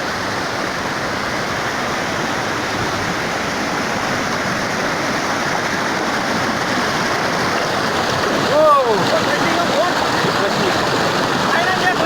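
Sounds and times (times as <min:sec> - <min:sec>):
waterfall and river rushing: 0:00.0 - 0:12.0.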